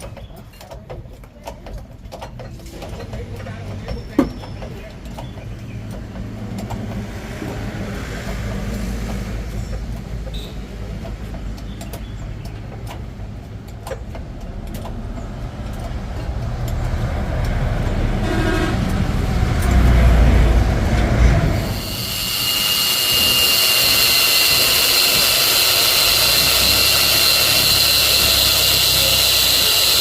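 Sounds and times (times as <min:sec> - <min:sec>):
vehicle engine rumbling: 0:00.0 - 0:30.0
horn toot: 0:18.1 - 0:19.1.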